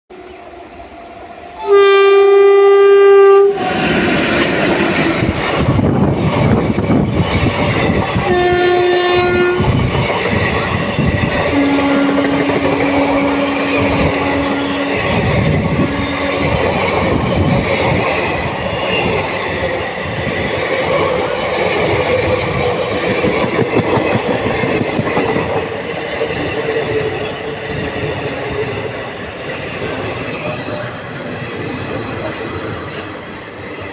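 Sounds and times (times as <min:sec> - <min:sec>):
train rumbling on rails: 0:00.1 - 0:33.9
train horn: 0:01.5 - 0:03.9, 0:08.3 - 0:09.7, 0:11.4 - 0:16.6.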